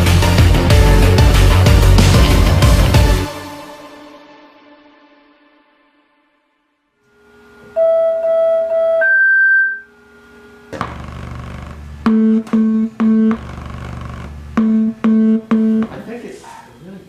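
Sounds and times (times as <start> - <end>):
held synthesizer notes: 7.1 - 16.0
short repeated synth chords: 10.8 - 16.0.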